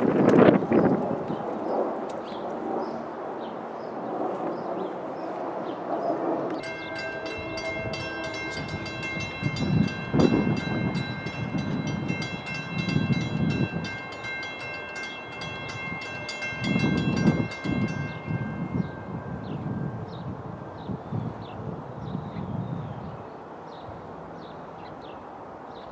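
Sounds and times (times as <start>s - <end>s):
low rumble of train: 5.8s - 25.9s
train bell ringing rapidly: 6.6s - 21.0s.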